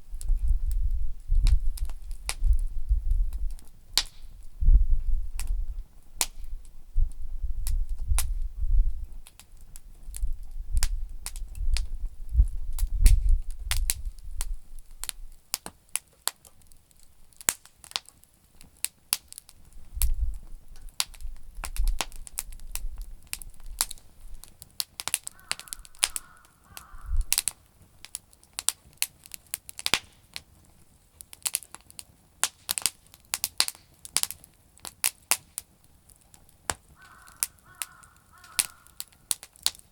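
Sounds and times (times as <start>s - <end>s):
campfire crackling and popping: 0.0s - 39.9s
crow cawing: 25.3s - 27.4s, 37.0s - 39.3s.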